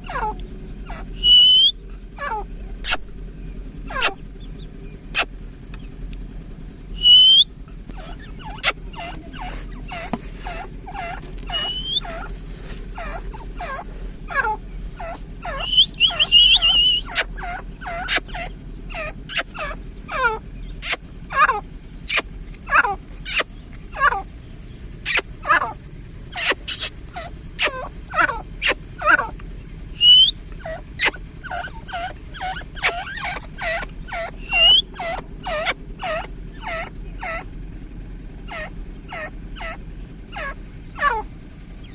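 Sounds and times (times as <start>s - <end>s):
francolin shrill calls: 0.0s - 3.1s, 3.9s - 5.3s, 6.9s - 12.3s, 13.0s - 37.5s, 38.4s - 41.9s
short rising whistles: 1.1s - 1.8s, 6.9s - 8.8s, 11.5s - 12.3s, 15.5s - 17.3s, 29.9s - 30.4s, 34.4s - 35.0s
warbling whistle: 1.2s - 1.8s, 7.0s - 7.5s, 11.6s - 12.0s, 15.5s - 17.2s, 30.0s - 30.4s, 34.4s - 35.0s.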